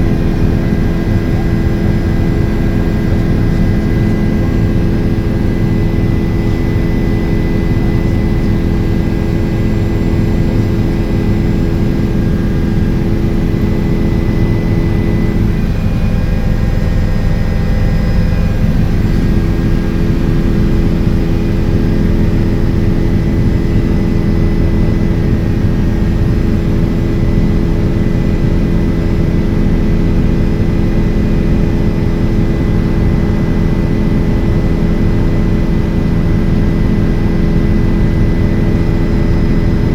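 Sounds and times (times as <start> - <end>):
constant hum: 0.0 - 39.9
helicopter engine and rotor: 0.0 - 39.9.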